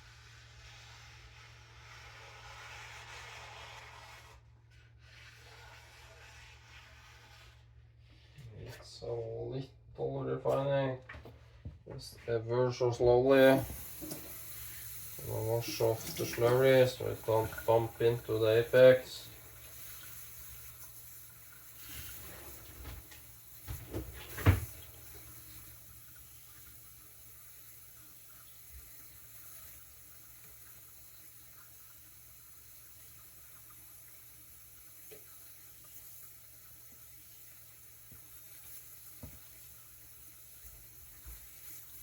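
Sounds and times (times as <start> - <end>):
faint steady hiss: 0.0 - 42.0
running tap water: 13.2 - 42.0.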